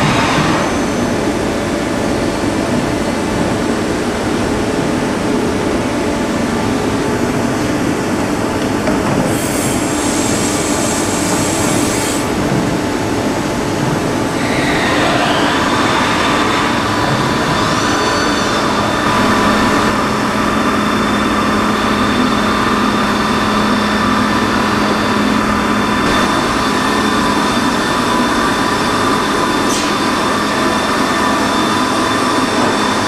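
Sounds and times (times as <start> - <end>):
milling machine running with whine: 14.2 - 33.0
tone gliding in pitch: 17.8 - 20.2
high-pitched tone: 18.0 - 20.3.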